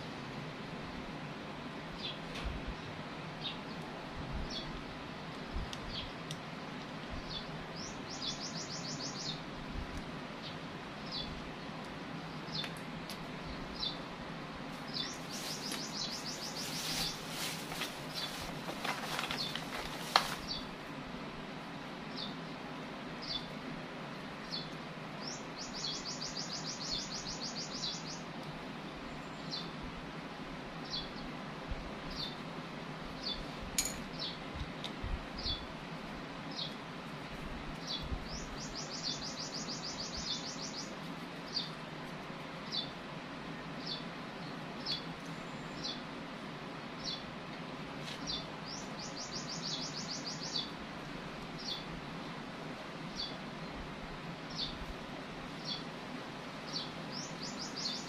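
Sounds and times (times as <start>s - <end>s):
steady background noise: 0.0s - 58.0s
bird chirping: 7.2s - 9.4s, 13.4s - 14.0s, 14.8s - 19.8s, 24.4s - 28.3s, 37.8s - 41.8s, 48.2s - 50.8s, 55.6s - 55.9s, 56.7s - 58.0s.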